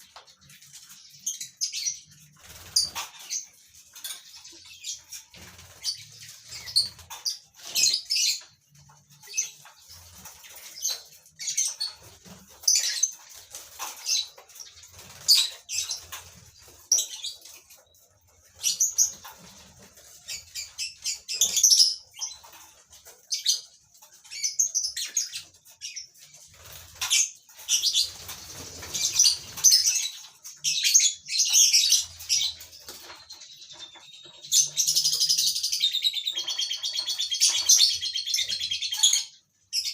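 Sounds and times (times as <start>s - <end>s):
lovebirds chirping and squawking: 0.0s - 39.9s
wings flapping: 11.9s - 16.9s, 26.4s - 30.1s.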